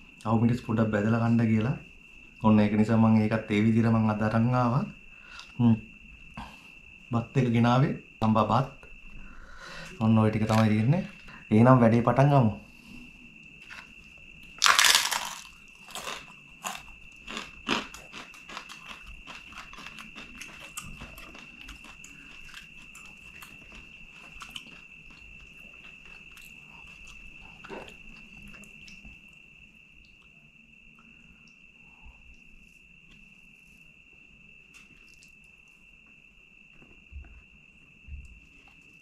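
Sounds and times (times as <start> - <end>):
crunching and chewing: 10.4 - 11.3, 13.5 - 29.2.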